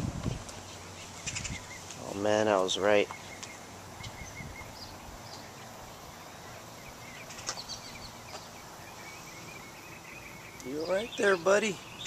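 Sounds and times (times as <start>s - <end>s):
outdoor background hiss: 0.0s - 12.0s
faint bird chirps: 2.9s - 12.0s.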